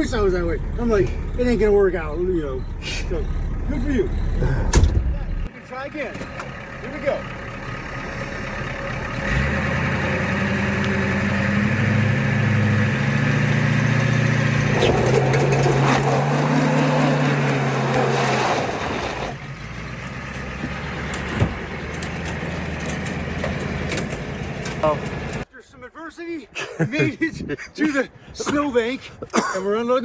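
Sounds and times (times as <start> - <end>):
truck engine revving: 6.4 - 25.4.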